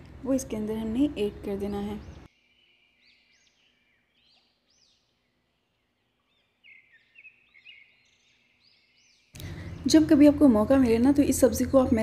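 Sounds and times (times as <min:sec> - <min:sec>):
faint bird chirps: 0:01.6 - 0:10.1.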